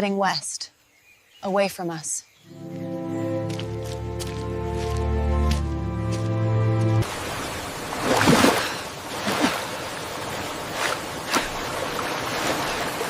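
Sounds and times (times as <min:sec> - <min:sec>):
held music chord: 0:02.5 - 0:07.1
rushing river water: 0:02.5 - 0:13.0
short water splashes: 0:07.0 - 0:13.0.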